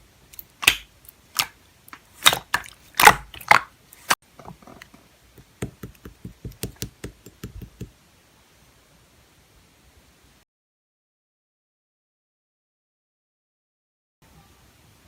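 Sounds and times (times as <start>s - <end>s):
slime squished clicking: 0.3s - 4.2s.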